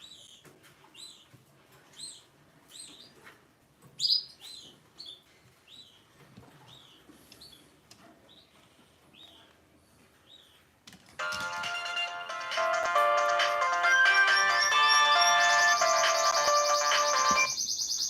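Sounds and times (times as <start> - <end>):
bird chirping: 0.0 - 9.5, 13.5 - 18.0.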